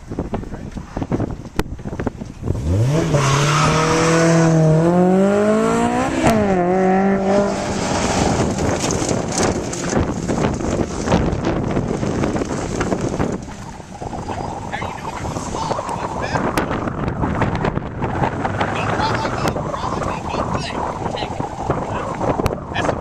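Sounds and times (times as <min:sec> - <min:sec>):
wind noise on microphone: 0:00.0 - 0:23.0
sports car accelerating: 0:01.2 - 0:23.0.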